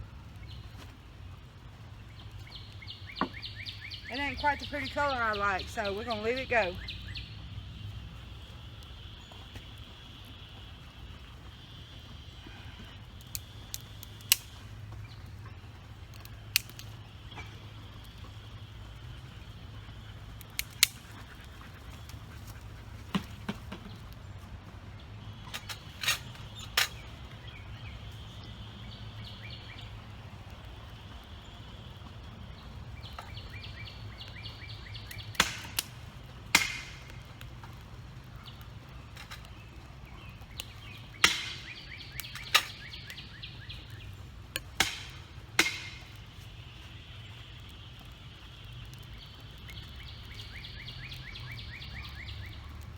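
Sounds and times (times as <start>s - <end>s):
stove low rumble: 0.0s - 52.9s
wood fire popping and cracking: 0.0s - 52.9s.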